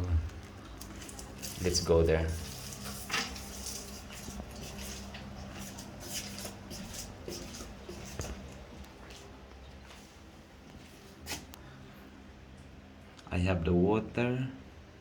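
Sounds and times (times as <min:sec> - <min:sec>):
rustling: 0:00.0 - 0:11.5
low household hum: 0:00.0 - 0:15.0
quiet footsteps: 0:00.2 - 0:11.6.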